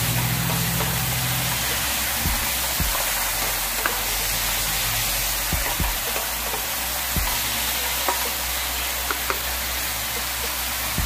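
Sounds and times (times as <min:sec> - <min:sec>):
meat sizzling in oil: 0:00.0 - 0:11.0
spatula stirring in a pan: 0:00.0 - 0:11.0.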